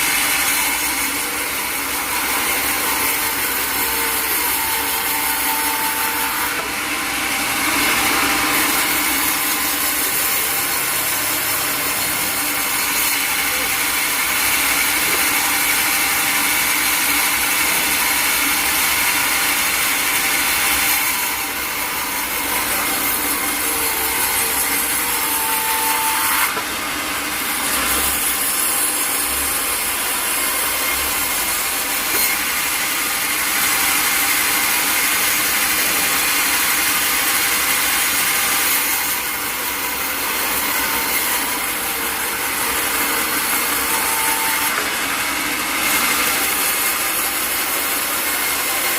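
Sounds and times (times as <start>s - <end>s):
saw cutting log: 0.0s - 48.9s.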